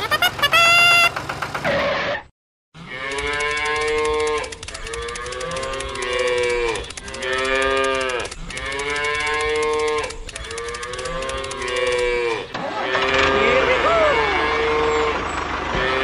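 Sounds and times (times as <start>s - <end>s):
cattle mooing: 2.8s - 16.0s.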